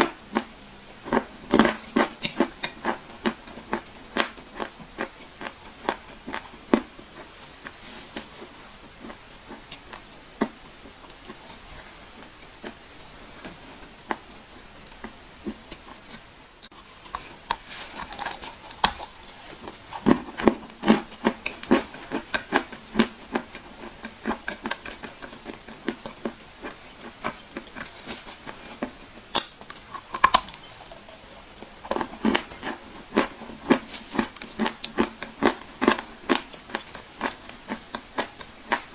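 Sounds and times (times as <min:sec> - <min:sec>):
clay crunching by hand: 0:16.7 - 0:30.6.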